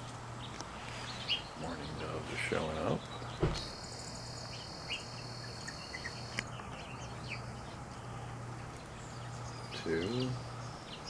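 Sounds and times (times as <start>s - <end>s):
low steady hum: 0.0s - 11.0s
small birds chirping: 0.0s - 11.0s
high-pitched insect-like buzz: 3.5s - 6.4s.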